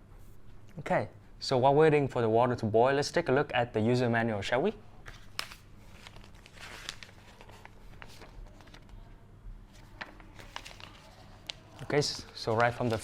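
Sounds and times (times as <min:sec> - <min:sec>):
paper rustling and crinkling: 0:05.0 - 0:13.0.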